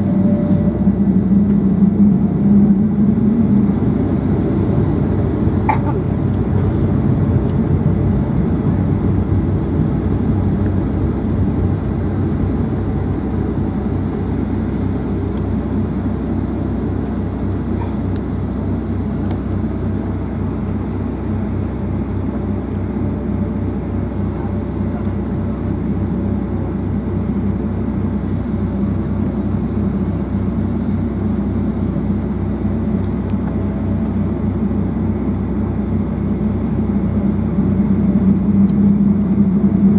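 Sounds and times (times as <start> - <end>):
rushing airflow: 0.0 - 26.3
low engine drone: 0.0 - 39.9.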